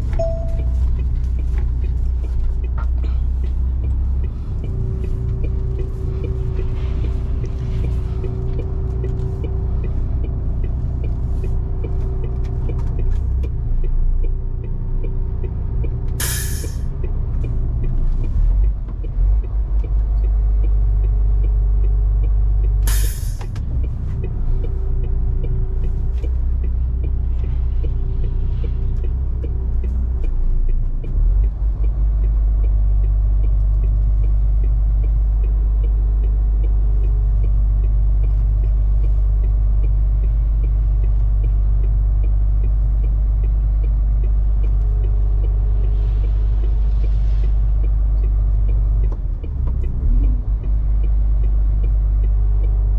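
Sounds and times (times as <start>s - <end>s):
truck diesel engine rumble: 0.0s - 52.9s
short sharp hiss: 16.2s - 16.8s, 22.9s - 23.5s.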